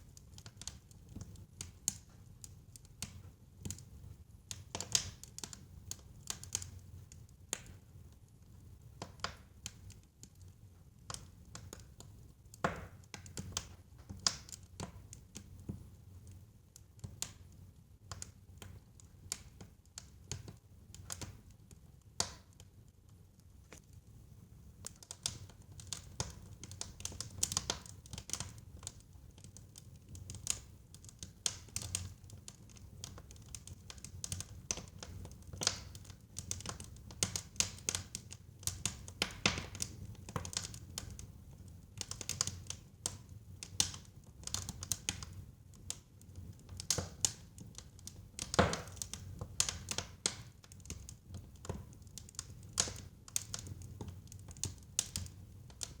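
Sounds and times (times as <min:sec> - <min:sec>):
fire pops and snaps: 0:00.1 - 0:07.8, 0:08.9 - 0:15.9, 0:18.0 - 0:56.0.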